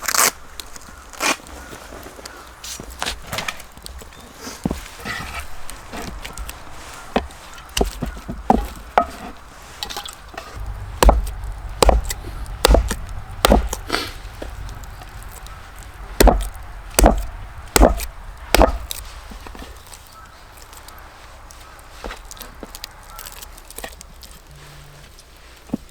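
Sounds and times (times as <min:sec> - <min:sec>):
heavy chopping blows on wood: 0:04.6 - 0:20.0.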